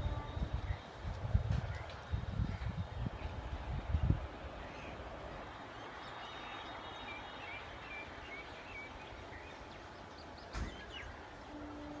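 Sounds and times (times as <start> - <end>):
outdoor background hiss: 0.0 - 12.0
birds chirping: 4.0 - 11.9
brief thump: 10.5 - 10.9.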